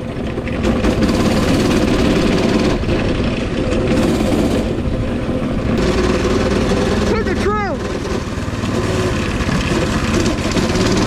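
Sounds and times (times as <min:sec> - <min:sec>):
mini bike engine idling: 0:00.0 - 0:11.0.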